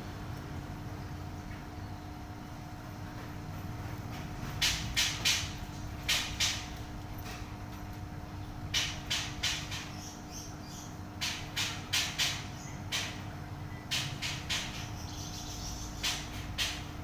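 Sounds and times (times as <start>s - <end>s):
steady low hum: 0.0s - 17.0s
songbird singing: 8.3s - 11.4s, 12.3s - 16.3s.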